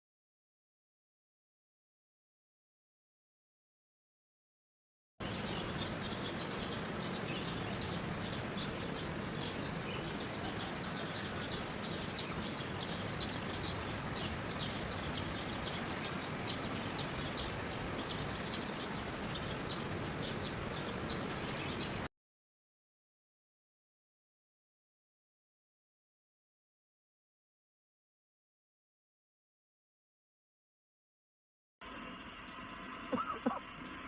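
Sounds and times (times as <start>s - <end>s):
birds chirping: 5.2s - 22.1s, 32.3s - 34.0s
outdoor background hiss: 5.2s - 22.1s.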